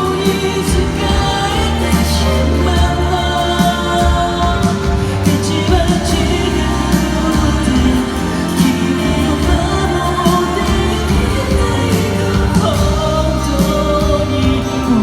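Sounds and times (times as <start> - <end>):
backing track bass and drums: 0.0 - 15.0
man singing pop song: 0.0 - 15.0.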